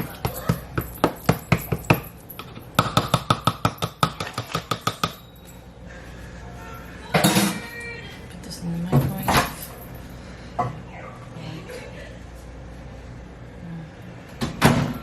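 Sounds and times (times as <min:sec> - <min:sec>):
utensil clinking against bowl: 0:00.0 - 0:05.4.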